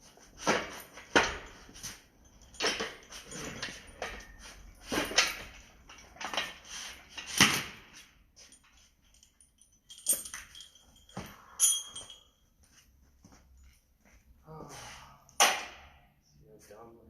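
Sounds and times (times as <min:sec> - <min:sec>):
metal tools clanking: 0:00.4 - 0:07.4, 0:08.0 - 0:12.4.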